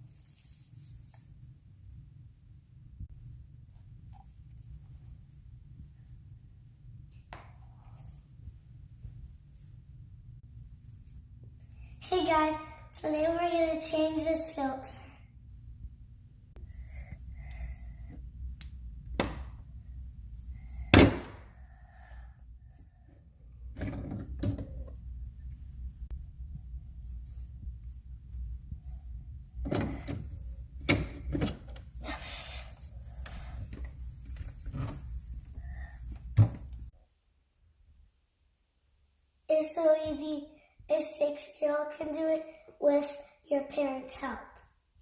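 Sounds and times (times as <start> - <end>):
low steady hum: 14.2 - 39.4.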